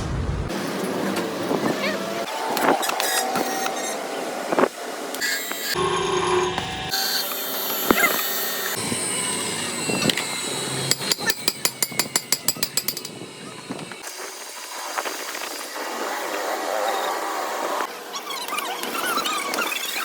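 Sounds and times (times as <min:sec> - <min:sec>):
metalworking tool sounds: 0:05.2 - 0:14.0.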